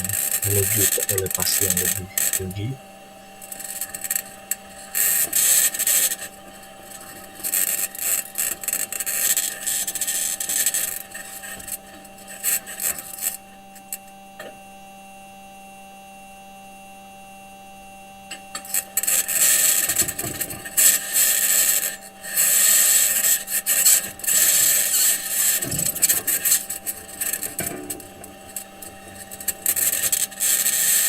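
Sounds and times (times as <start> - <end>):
steady electrical hum: 0.0 - 13.4.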